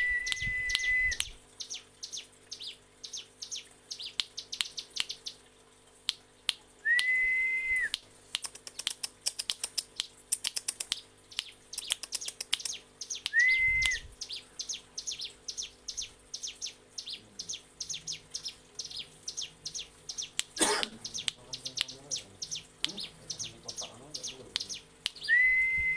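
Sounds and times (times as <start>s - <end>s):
short level whistle: 0.0s - 1.3s, 6.9s - 7.9s, 13.3s - 14.1s, 25.3s - 25.9s
bird singing rapid ticking song: 0.0s - 6.2s, 8.3s - 25.9s
sharp click: 7.9s - 14.0s.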